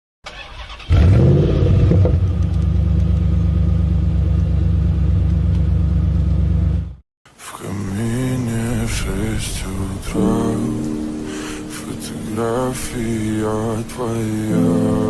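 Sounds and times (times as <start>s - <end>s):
car engine revving and rumbling: 0.9s - 7.0s.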